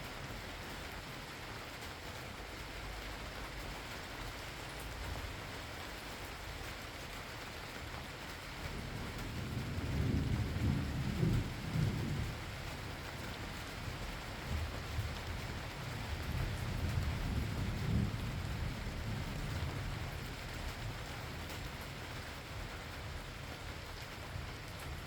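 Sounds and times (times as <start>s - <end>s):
steady rain falling: 0.0s - 25.0s
distant thunder rumble: 8.6s - 22.9s.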